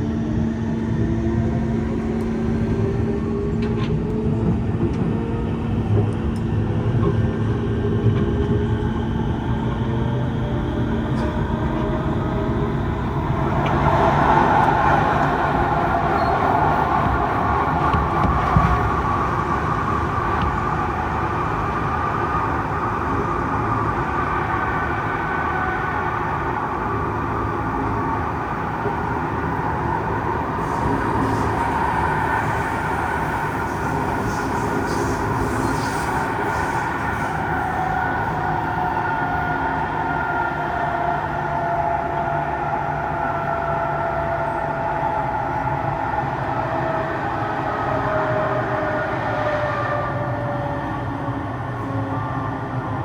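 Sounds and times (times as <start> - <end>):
metro train wheels rumbling on rail: 0.0 - 53.0
traction motor whine: 0.1 - 53.0
hiss: 30.6 - 38.3.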